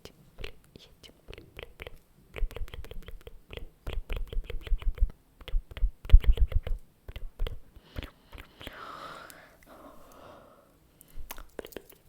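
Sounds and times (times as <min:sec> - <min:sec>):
rapid irregular clicks and taps: 0:01.3 - 0:07.6.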